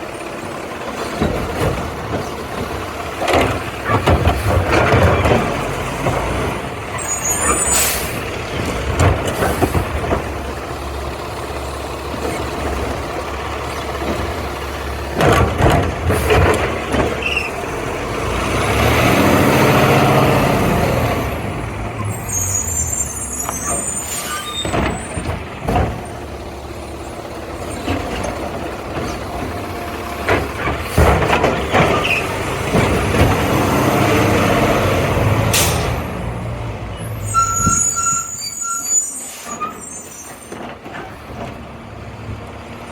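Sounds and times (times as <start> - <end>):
garbage truck diesel engine: 0.0 - 42.9
metal clanks and knocks: 0.9 - 6.3, 15.1 - 17.5, 24.5 - 26.3, 27.6 - 33.9
air brakes hissing: 7.0 - 8.3, 22.1 - 25.2, 35.5 - 36.0, 37.0 - 40.6.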